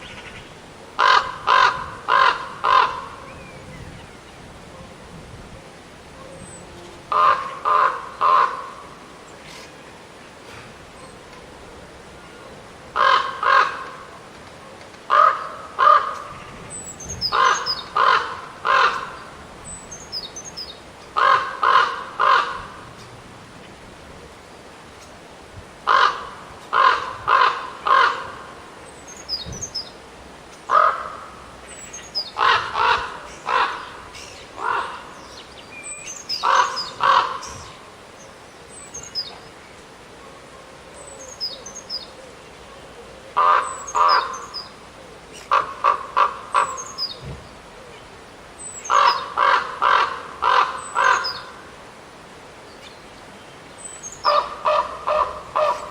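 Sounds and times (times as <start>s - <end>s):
ravens cawing: 0.1s - 3.4s, 7.1s - 9.0s, 12.9s - 14.2s, 15.1s - 16.6s, 17.3s - 19.4s, 21.2s - 22.9s, 25.8s - 28.6s, 30.7s - 31.5s, 32.4s - 35.4s, 36.4s - 37.7s, 43.3s - 44.5s, 45.5s - 47.0s, 48.8s - 51.7s, 54.2s - 55.9s
songbird chirping: 28.8s - 30.7s, 31.6s - 45.6s.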